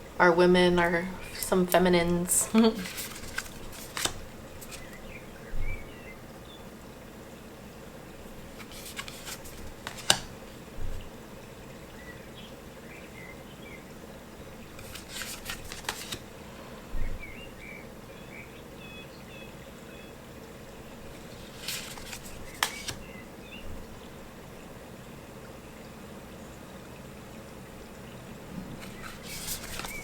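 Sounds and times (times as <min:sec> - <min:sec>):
cards snapping and sliding: 0:02.5 - 0:05.0, 0:08.4 - 0:10.3, 0:14.8 - 0:16.2, 0:21.4 - 0:23.1, 0:28.8 - 0:30.0.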